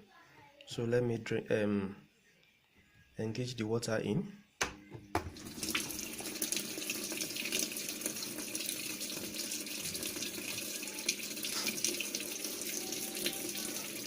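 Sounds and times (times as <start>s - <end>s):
water gushing into washing machine: 5.4s - 14.0s.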